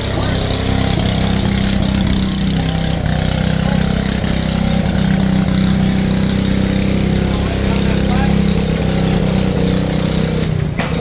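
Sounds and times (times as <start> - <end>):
steam sawmill running: 0.0 - 11.0.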